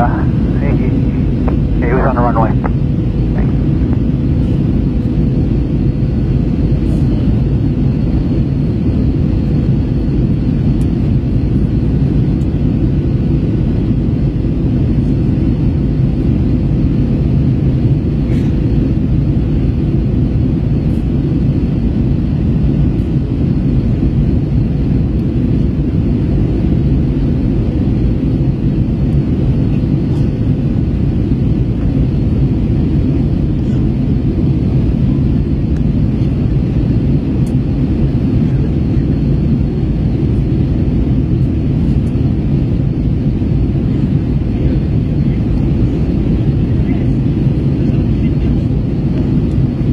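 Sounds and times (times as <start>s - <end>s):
faint steady hum: 0.0s - 8.9s
airplane cabin drone: 0.0s - 49.9s.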